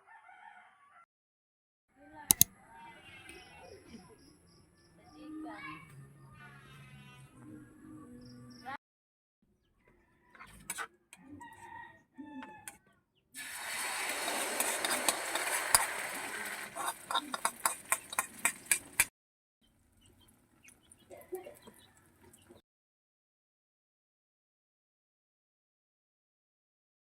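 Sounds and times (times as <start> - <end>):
chickens clucking: 14.6 - 19.1.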